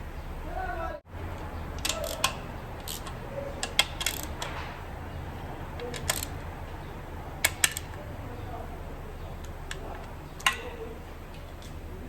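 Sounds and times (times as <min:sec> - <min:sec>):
metallic clicks of hand tools: 0:01.3 - 0:04.8, 0:05.8 - 0:06.5, 0:07.4 - 0:08.0, 0:09.4 - 0:11.8.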